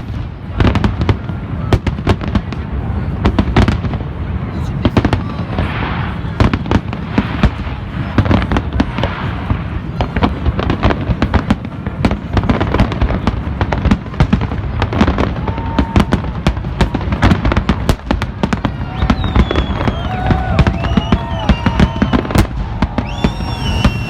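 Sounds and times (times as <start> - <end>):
fireworks bangs and crackles: 0.0 - 24.0
fireworks whistles gliding in pitch: 18.5 - 24.0.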